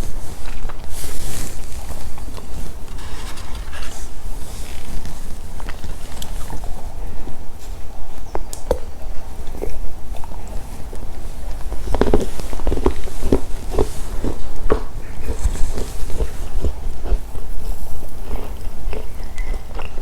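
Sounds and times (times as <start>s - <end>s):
low microphone hum: 0.0s - 20.0s
mouth chewing and crunching: 0.0s - 20.0s
wet clicks and crackles: 8.4s - 9.6s.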